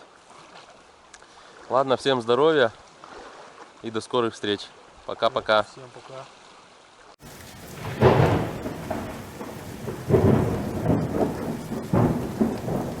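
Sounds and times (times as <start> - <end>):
rain hissing: 7.2 - 13.0
thunder rumbling: 7.2 - 13.0.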